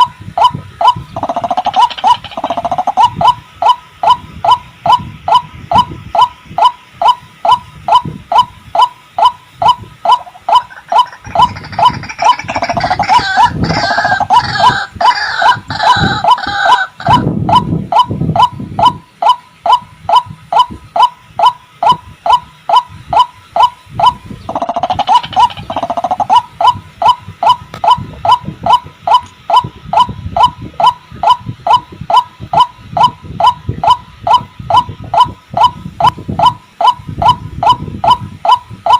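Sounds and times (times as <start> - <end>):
harsh croaking calls with grunts: 1.2 - 3.2, 10.1 - 17.3, 24.4 - 26.4.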